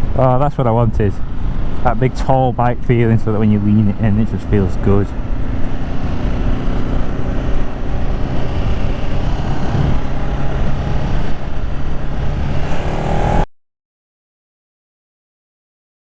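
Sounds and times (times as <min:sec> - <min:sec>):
wind and road noise: 0:00.0 - 0:13.5
motorcycle engine running: 0:03.6 - 0:12.9.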